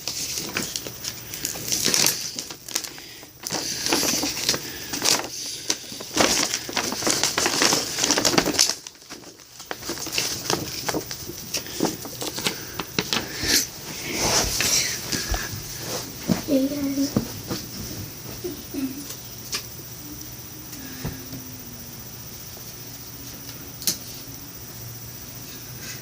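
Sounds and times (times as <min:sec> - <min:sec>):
packaging crinkling and rustling: 0:00.0 - 0:18.2.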